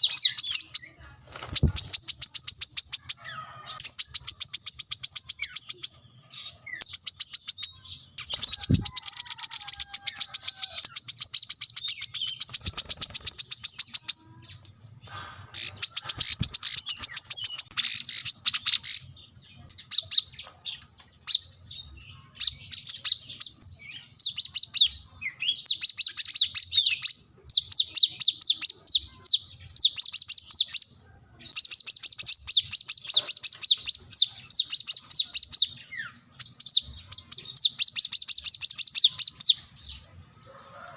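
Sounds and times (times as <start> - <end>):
sunbird singing fast trills: 1.6 - 20.4, 21.2 - 40.0.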